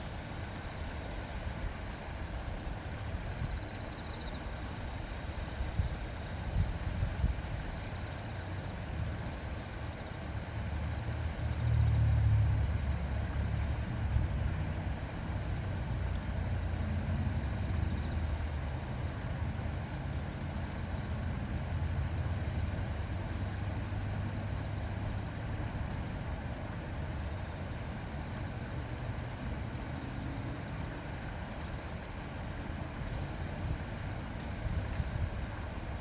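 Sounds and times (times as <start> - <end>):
river murmuring: 0.0 - 36.0.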